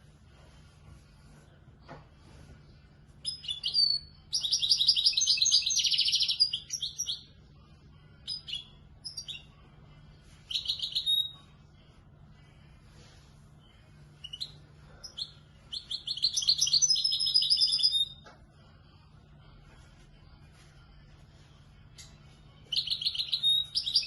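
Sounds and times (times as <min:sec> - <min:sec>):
goldfinch singing: 0:22.7 - 0:24.0.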